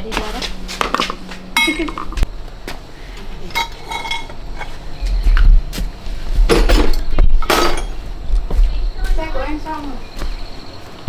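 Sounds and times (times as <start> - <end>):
low rumble: 0.0 - 10.6
metal objects clinking: 0.2 - 2.2, 3.4 - 4.8, 6.5 - 8.0.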